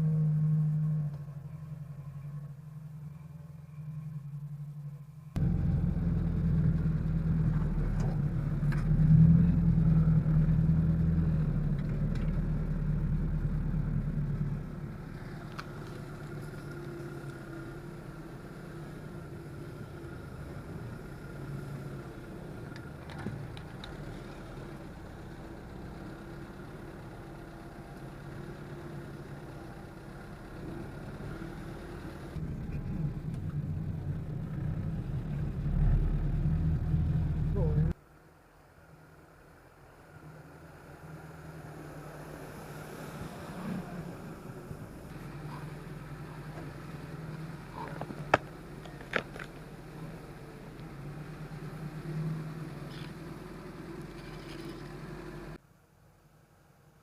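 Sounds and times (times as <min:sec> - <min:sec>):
car engine running: 0:00.0 - 0:38.0, 0:44.7 - 0:52.0.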